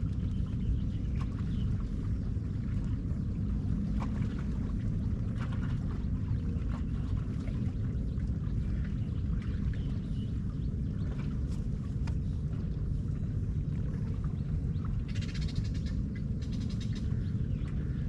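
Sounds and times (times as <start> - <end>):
steady low rumble: 0.0 - 18.0
faint chirps and ticks: 14.0 - 18.0.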